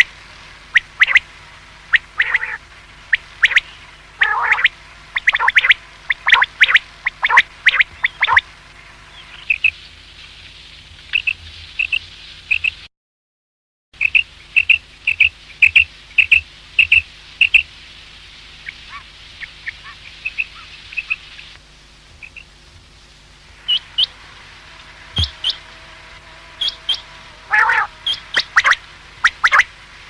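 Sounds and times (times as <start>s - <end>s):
quail calling: 0.7s - 8.5s, 18.6s - 21.3s, 22.2s - 22.5s, 25.1s - 25.7s, 26.5s - 29.7s.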